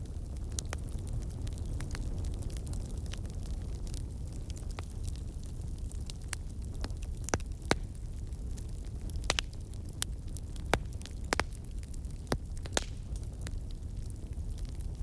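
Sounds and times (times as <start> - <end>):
fire crackling: 0.0 - 15.0
sharp pops and snaps: 12.3 - 13.3.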